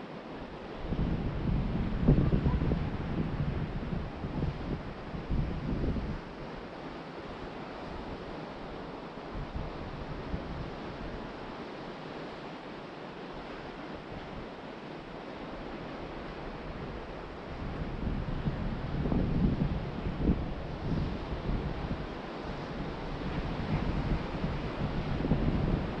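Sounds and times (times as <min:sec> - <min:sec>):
ocean surf washing onto beach: 0:00.0 - 0:26.0
wind buffeting microphone: 0:00.7 - 0:06.7, 0:15.7 - 0:26.0.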